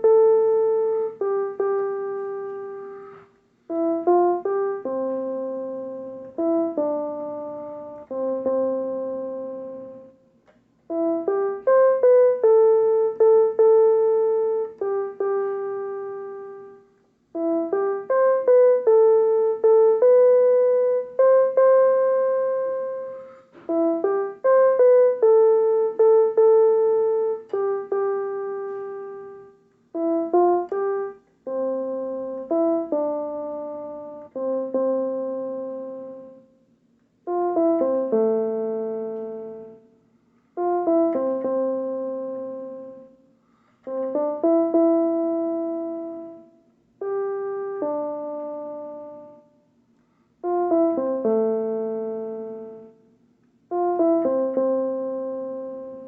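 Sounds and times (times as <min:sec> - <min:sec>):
slow hymn on keyboard: 0:00.0 - 0:56.0.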